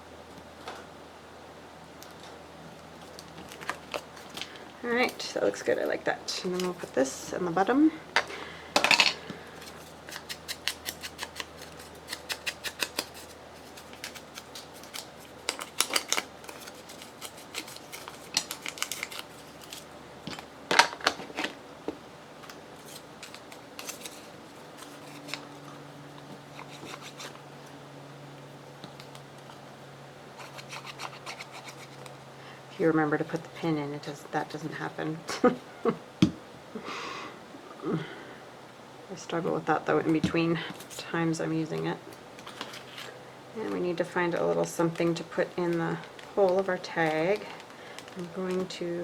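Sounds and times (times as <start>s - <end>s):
scissors snipping paper: 9.4s - 19.9s, 22.8s - 27.4s, 30.4s - 32.1s.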